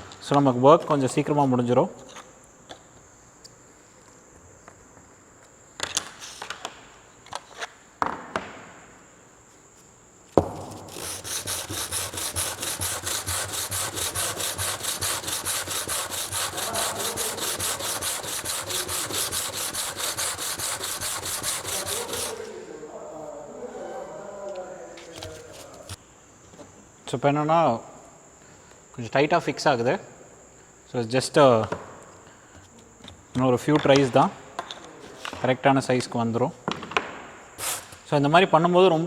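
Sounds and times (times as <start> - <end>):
sanding strokes on sandpaper: 10.5 - 22.6, 37.6 - 38.0.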